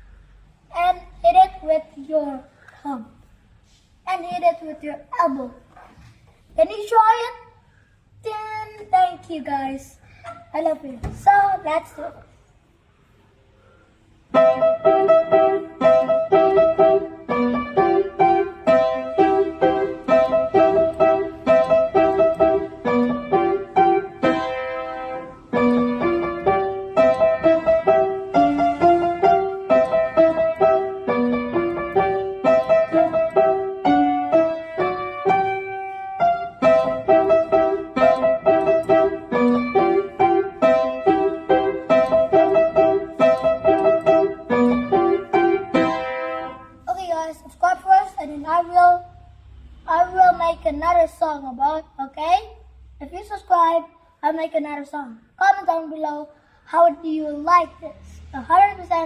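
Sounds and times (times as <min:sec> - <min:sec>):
piano playing lively melody: 0:14.3 - 0:46.8.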